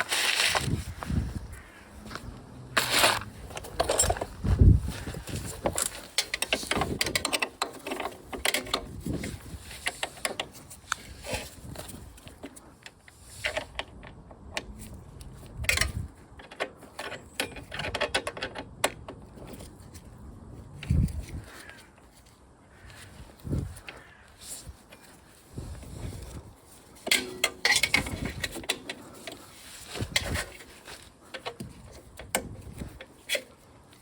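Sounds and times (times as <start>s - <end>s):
metal tools clicking and clanking: 2.8s - 4.5s, 5.4s - 10.6s, 15.6s - 19.5s, 27.0s - 30.7s.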